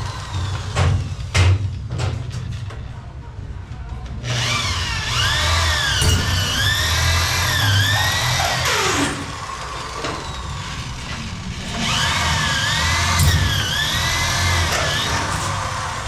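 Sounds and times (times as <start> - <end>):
electric drill boring: 4.3 - 16.0.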